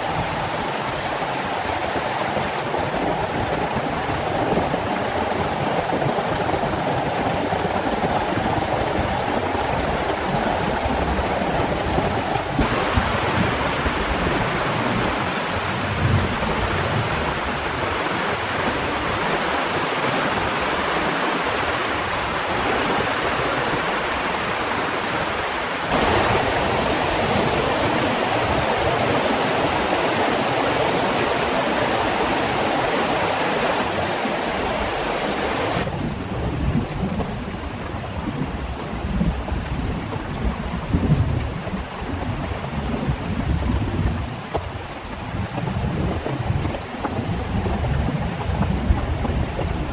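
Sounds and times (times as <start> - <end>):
heavy rain falling: 12.6 - 49.9.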